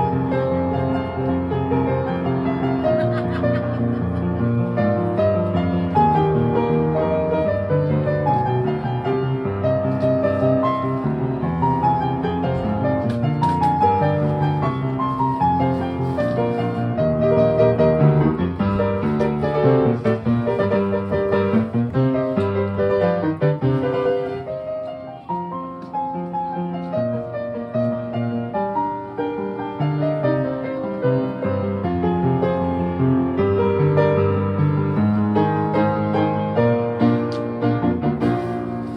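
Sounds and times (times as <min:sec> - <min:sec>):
piano piece: 0:00.0 - 0:38.9.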